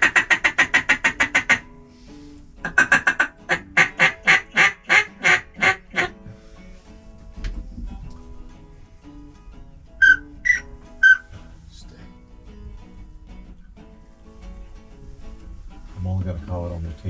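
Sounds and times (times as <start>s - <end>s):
duck call quacks: 0.0s - 1.7s, 2.6s - 6.2s, 10.0s - 11.3s
faint background music: 0.0s - 17.0s.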